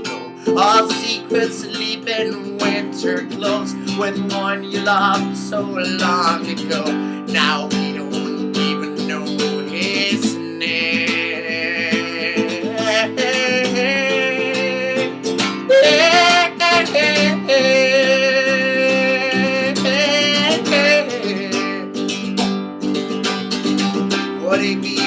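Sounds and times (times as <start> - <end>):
acoustic guitar strumming chords: 0.0 - 25.0.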